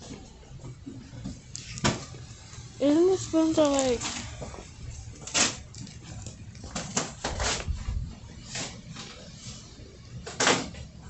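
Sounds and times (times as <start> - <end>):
small items clacking: 3.5 - 4.2.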